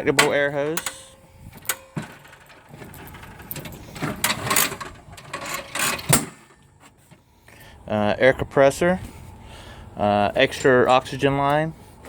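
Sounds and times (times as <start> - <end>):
air hose reel clicking and rattling: 0.0 - 6.7
hose reel scraping: 0.6 - 7.0.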